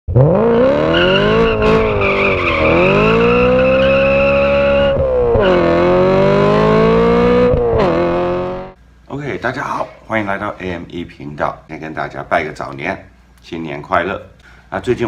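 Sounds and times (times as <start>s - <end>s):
car engine revving hard: 0.1s - 8.8s.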